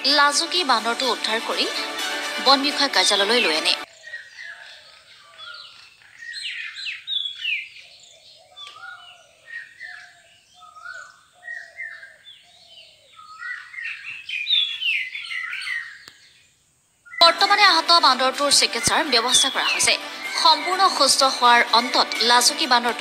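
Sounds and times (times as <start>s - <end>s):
birds chirping: 0.0s - 23.0s
lower repeated bird calls: 3.1s - 17.3s.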